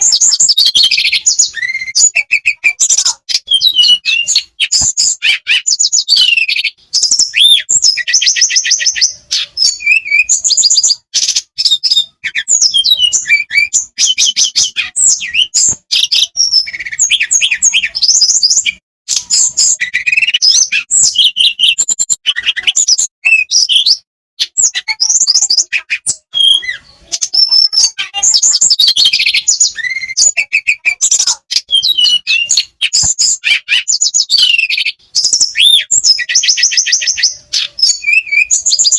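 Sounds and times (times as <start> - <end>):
bird trilling and twittering: 0.0 - 38.9.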